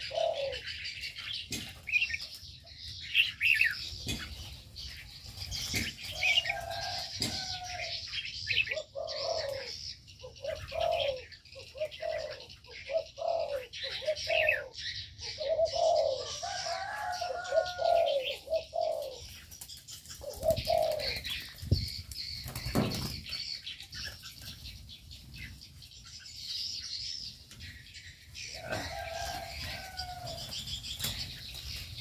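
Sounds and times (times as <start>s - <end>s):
bird low cooing call: 0.0s - 1.0s, 6.1s - 19.3s, 20.2s - 21.4s, 28.5s - 30.5s
birds chirping: 0.0s - 32.0s
wing flutters or thumps: 22.6s - 23.2s.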